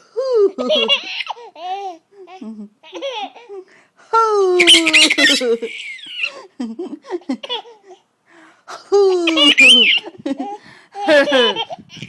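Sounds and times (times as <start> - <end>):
child squealing: 4.6 - 6.3, 9.4 - 10.0
child giggling: 9.1 - 12.0.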